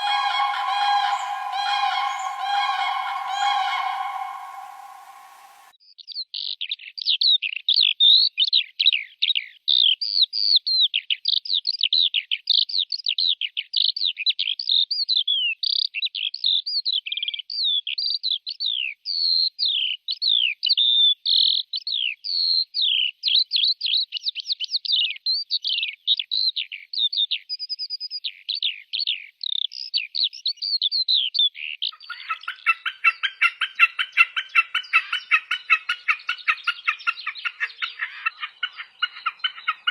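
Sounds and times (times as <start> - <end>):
low rattling bird call: 0.0 - 5.7
songbird chirping and whistling: 0.0 - 5.7.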